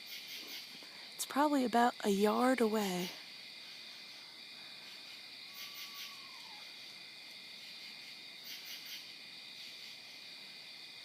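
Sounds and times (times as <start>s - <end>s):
insect trill: 0.0s - 11.0s.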